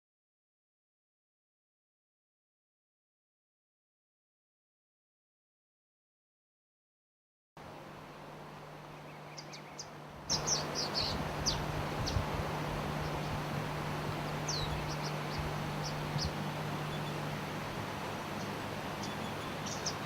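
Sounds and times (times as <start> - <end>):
high bird chirps: 9.1 - 12.2, 14.2 - 17.2, 18.3 - 20.0
waterfall rushing: 10.3 - 20.0.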